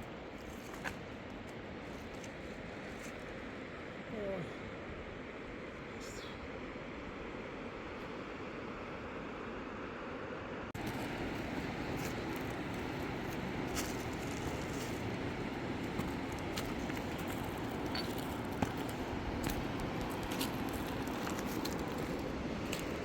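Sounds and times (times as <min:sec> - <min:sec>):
river rushing: 0:10.8 - 0:23.0
rustles: 0:10.8 - 0:23.0.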